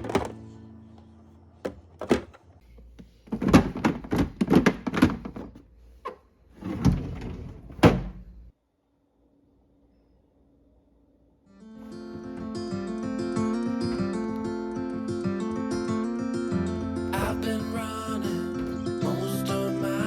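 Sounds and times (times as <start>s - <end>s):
food containers knocking: 3.3s - 5.6s.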